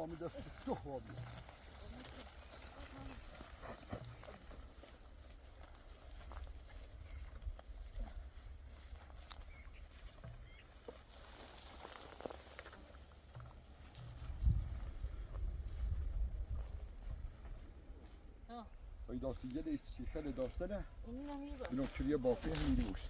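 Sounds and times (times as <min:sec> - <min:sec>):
faint rustles and clicks: 0:00.0 - 0:18.2
cricket chirping trill: 0:00.0 - 0:23.0
wind rumble on microphone: 0:14.0 - 0:17.7.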